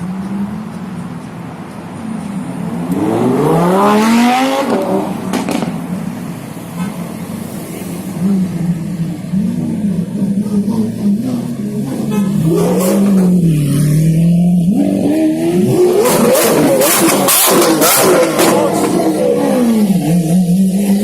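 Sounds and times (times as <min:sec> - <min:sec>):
sports car engine revving: 0:02.6 - 0:06.1, 0:08.2 - 0:21.0.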